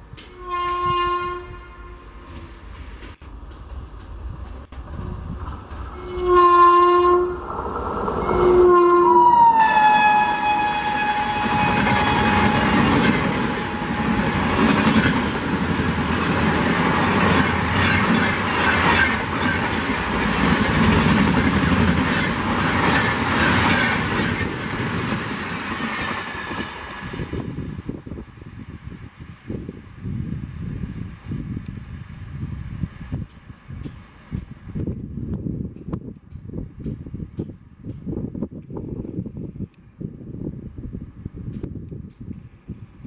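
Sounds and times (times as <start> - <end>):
locomotive horn blasts: 0.3 - 1.9, 6.0 - 7.4, 8.2 - 14.6
train wheels clattering on rails: 2.2 - 6.0, 11.4 - 27.4.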